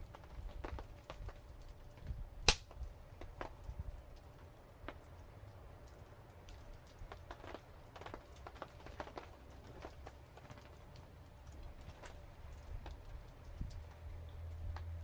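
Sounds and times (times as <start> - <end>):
wood fire crackling: 0.0 - 15.0
low steady rumble: 9.3 - 15.0.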